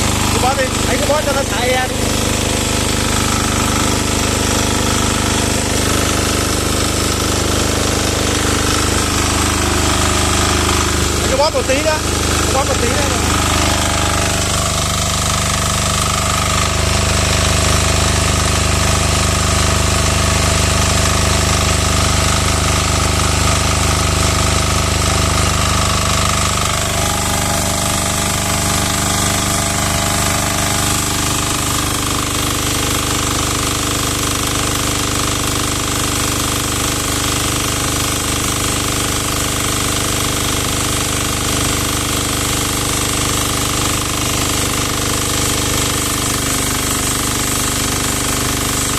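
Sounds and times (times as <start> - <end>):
diesel engine clattering: 0.0 - 34.6.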